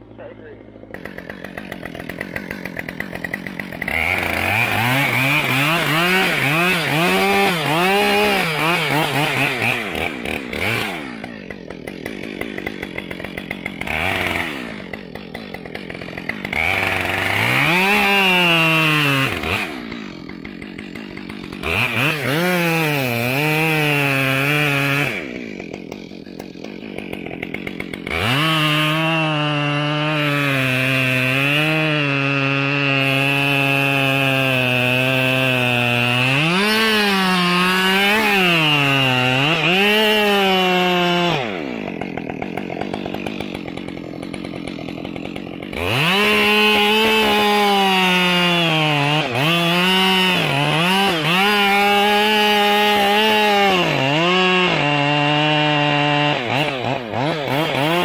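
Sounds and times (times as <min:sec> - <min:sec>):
chainsaw revving and cutting wood: 0:00.0 - 0:58.0.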